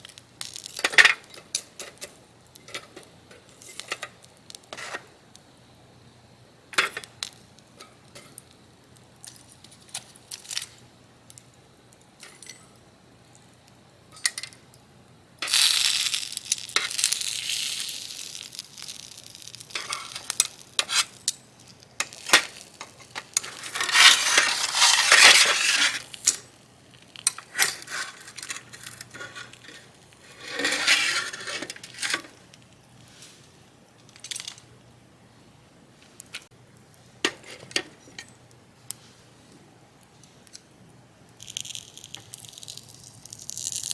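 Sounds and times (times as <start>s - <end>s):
metal utensils clinking on griddle: 0.4s - 5.1s, 6.7s - 8.4s, 12.2s - 12.8s, 14.1s - 14.6s, 15.4s - 21.4s, 22.0s - 26.5s, 27.1s - 32.4s, 37.2s - 38.4s
meat sizzling: 15.4s - 31.9s.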